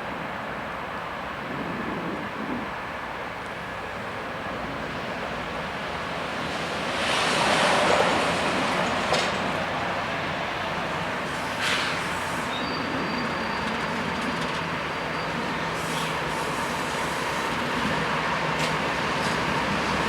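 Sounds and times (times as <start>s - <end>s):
freight train wheels rumbling: 0.0s - 20.0s
high wheel squeal: 11.3s - 17.5s.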